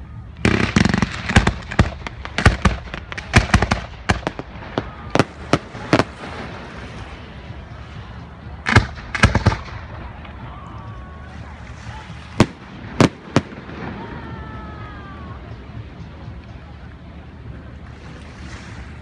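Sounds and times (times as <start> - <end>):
fireworks bursting: 0.4 - 7.3, 8.6 - 10.3, 12.0 - 15.2.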